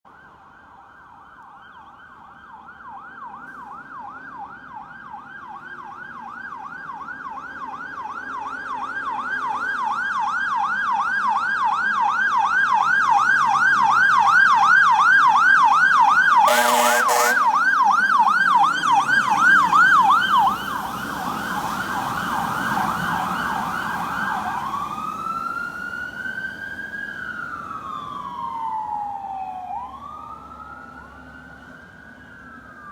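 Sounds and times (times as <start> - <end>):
fire truck siren: 0.1 - 32.9
horn blast: 16.5 - 17.6.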